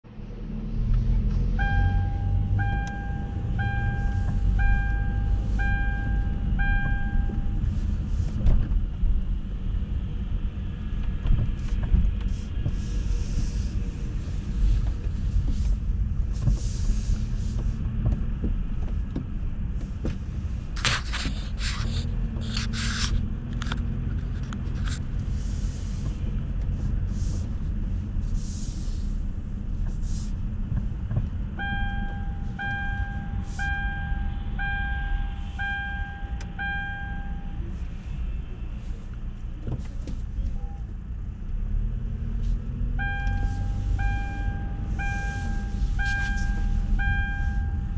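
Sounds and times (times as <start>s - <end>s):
electronic beep: 1.6s - 7.5s, 31.6s - 37.6s, 43.0s - 47.9s.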